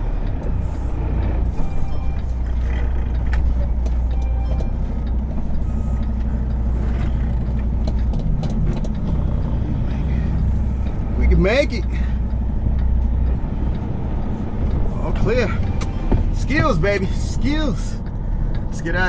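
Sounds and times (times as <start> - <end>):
diesel truck engine running: 0.0 - 19.0.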